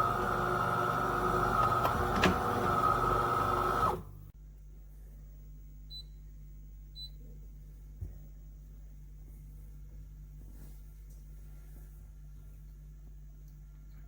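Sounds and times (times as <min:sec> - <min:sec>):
espresso machine humming: 0:00.0 - 0:04.1.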